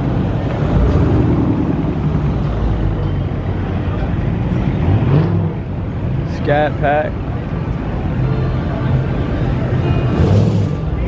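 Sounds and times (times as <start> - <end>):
car engine rumbling past: 0.0 - 3.0.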